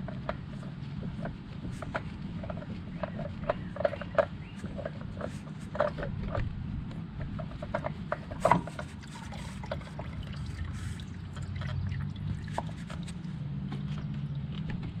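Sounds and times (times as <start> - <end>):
handling clicks and knocks: 0.0 - 10.2, 10.8 - 15.0
low steady hum: 0.0 - 15.0
oil trickling: 7.4 - 14.6.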